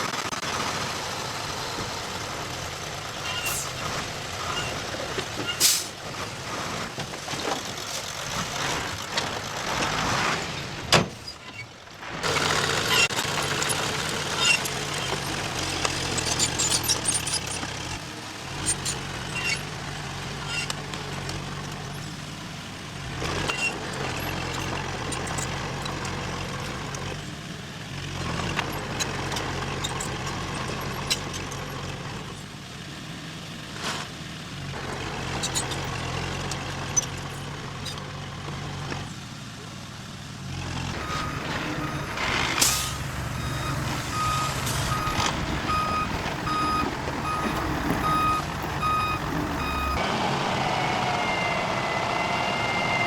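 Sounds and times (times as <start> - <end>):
diesel engine running under load: 0.0 - 10.8, 11.8 - 53.0
metallic clicks and squeaks: 3.2 - 3.8, 4.4 - 5.7, 11.1 - 11.8, 12.8 - 18.0, 18.6 - 19.8, 20.4 - 22.2, 23.2 - 27.1, 28.5 - 32.0, 35.2 - 38.2.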